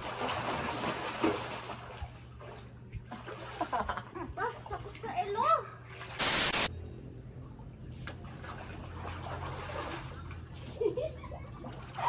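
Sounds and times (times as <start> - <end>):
water trickling and splashing: 0.0 - 6.3, 7.7 - 12.0.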